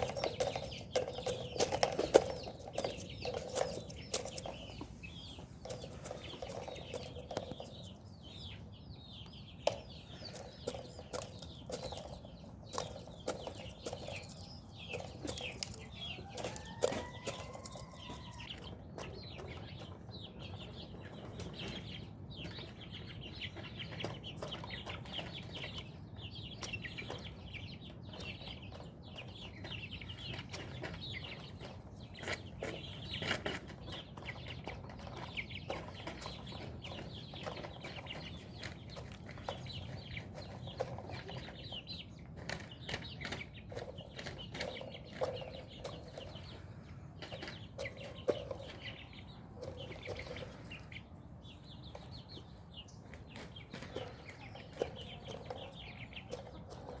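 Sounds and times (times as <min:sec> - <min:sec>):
chickens clucking: 0:00.0 - 0:57.0
drawn-out chicken call: 0:15.1 - 0:19.5.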